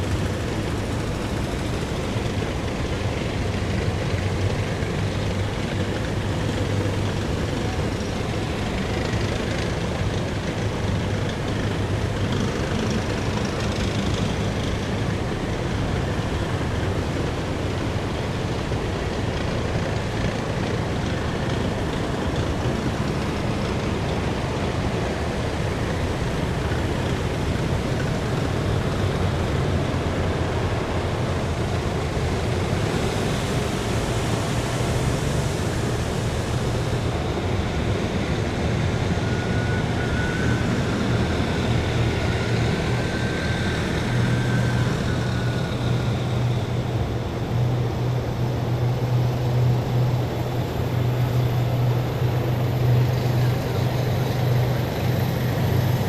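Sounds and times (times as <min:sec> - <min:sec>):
heavy vehicles diesel engine drone: 0:00.0 - 0:56.0
road and tyre noise: 0:00.0 - 0:56.0
hiss: 0:19.8 - 0:46.7.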